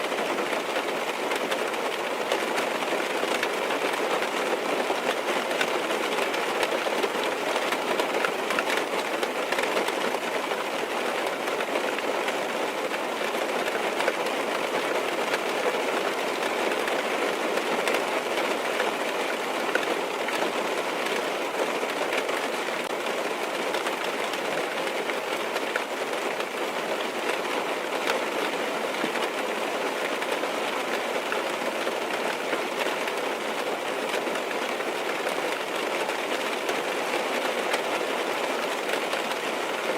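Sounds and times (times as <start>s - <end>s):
rain pattering on car windows: 0.0s - 39.9s.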